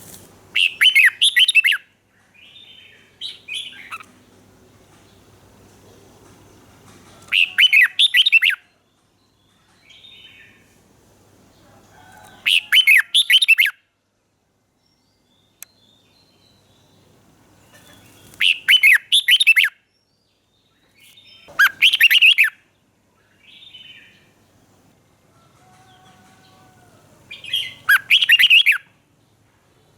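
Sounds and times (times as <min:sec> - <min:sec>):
bird singing warbled phrases: 0:00.5 - 0:04.2, 0:07.3 - 0:08.7, 0:12.4 - 0:13.8, 0:14.9 - 0:24.5, 0:27.3 - 0:29.0.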